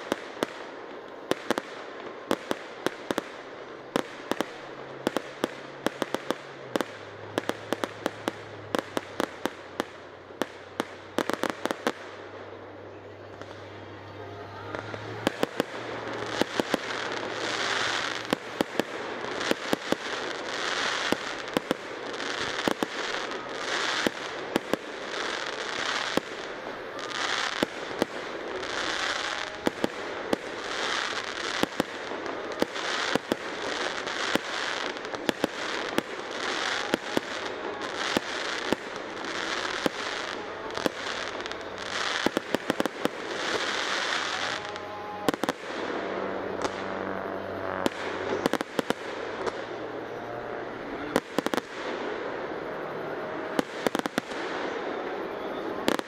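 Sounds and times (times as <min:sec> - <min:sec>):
crackling firework stars: 0:00.0 - 0:56.0.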